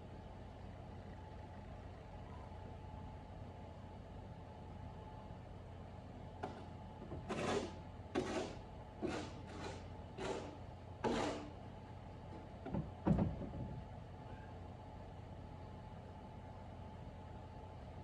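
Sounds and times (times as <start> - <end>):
snow shovel scraping snow: 7.3 - 11.5.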